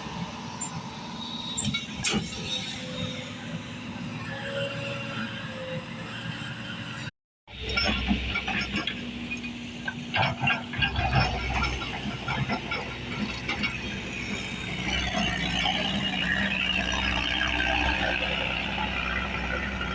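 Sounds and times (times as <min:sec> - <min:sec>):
metal parts knocking and squealing: 0:00.6 - 0:03.7, 0:07.5 - 0:19.9
excavator engine running: 0:07.5 - 0:19.9.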